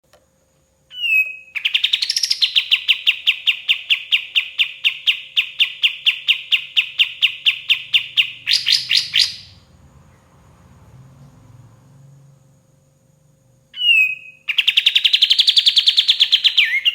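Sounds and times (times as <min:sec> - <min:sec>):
bird singing downward notes: 0:00.9 - 0:10.3, 0:13.8 - 0:16.9.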